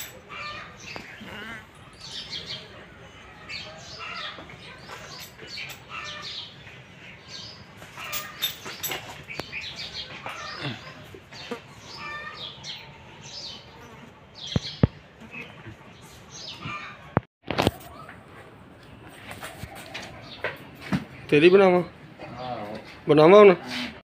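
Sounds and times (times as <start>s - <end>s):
small birds chirping: 0.0s - 17.2s.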